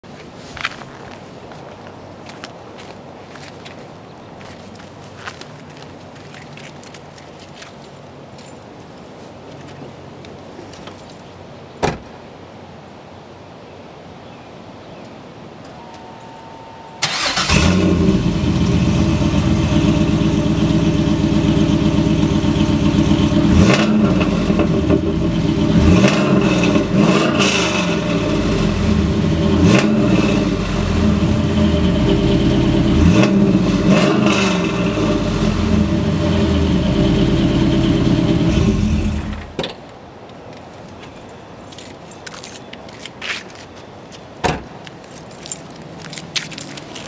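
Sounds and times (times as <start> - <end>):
car engine starting and revving: 17.0 - 39.6.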